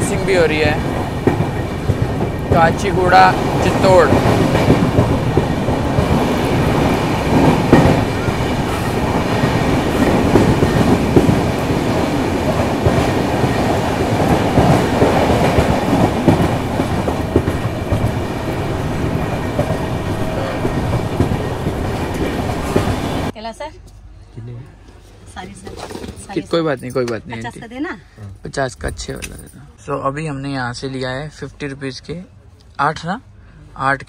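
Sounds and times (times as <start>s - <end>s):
train wheels rumbling on rails: 0.0s - 23.4s.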